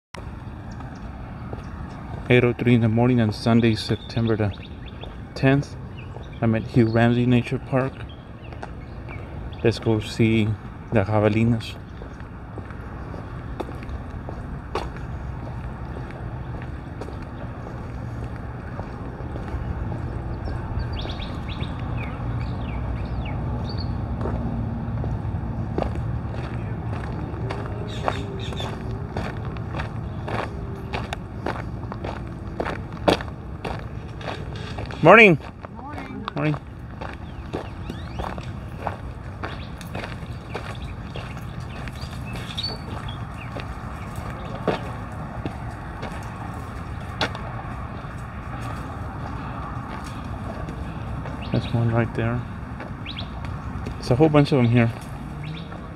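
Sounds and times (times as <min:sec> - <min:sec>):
steady low rumble: 0:00.2 - 0:55.9
footsteps walking: 0:00.4 - 0:02.4, 0:08.5 - 0:09.4, 0:11.8 - 0:22.6, 0:24.1 - 0:51.8, 0:52.7 - 0:54.0
bird chirping: 0:03.2 - 0:10.3, 0:19.4 - 0:24.0, 0:26.5 - 0:29.0, 0:36.3 - 0:45.0, 0:50.1 - 0:52.4, 0:53.0 - 0:53.4, 0:54.4 - 0:55.9.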